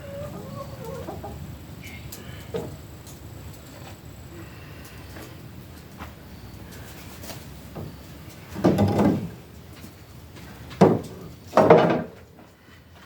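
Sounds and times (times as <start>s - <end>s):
wooden boards clunking and scraping: 7.7s - 12.5s.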